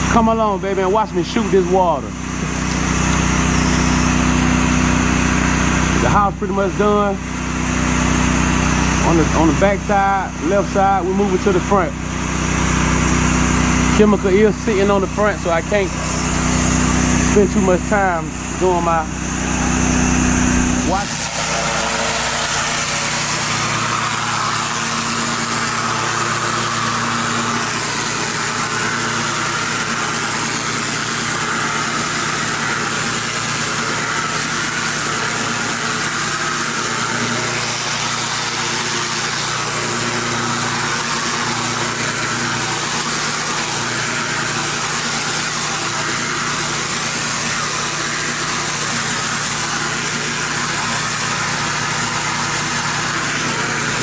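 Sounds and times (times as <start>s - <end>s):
pressure washer engine running: 0.0s - 54.0s
high-pressure water spray hiss: 20.9s - 54.0s.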